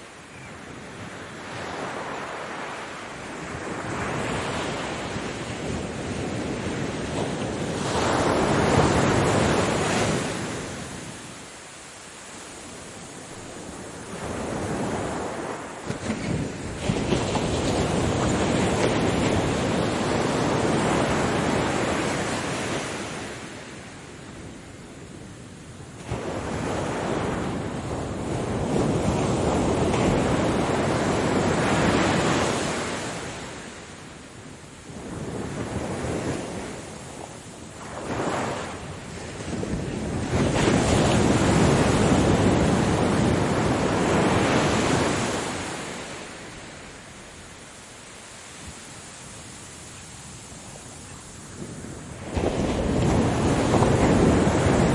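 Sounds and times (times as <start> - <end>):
ocean waves surging: 1.1 - 23.7, 35.1 - 54.9.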